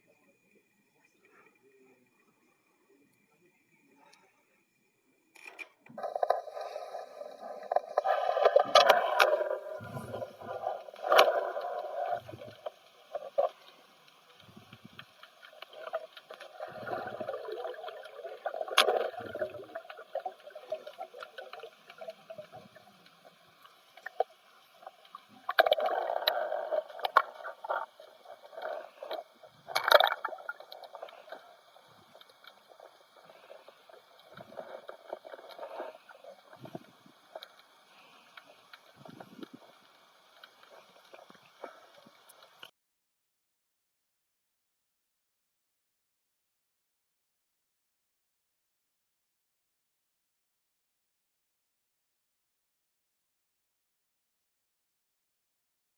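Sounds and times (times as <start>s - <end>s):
water sloshing and gurgling: 5.9s - 42.7s.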